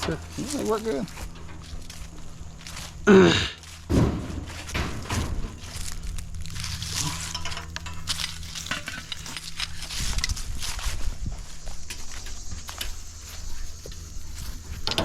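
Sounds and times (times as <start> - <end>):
heavy metal clank: 0.0 - 3.0, 3.6 - 9.4
metal knocks and rattles: 0.0 - 3.0, 3.6 - 10.4, 14.0 - 15.0.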